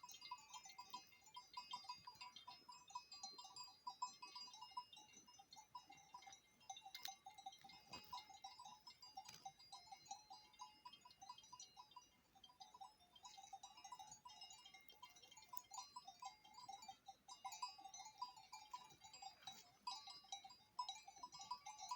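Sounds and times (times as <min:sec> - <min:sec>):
livestock bells tinkling: 0:00.0 - 0:21.9.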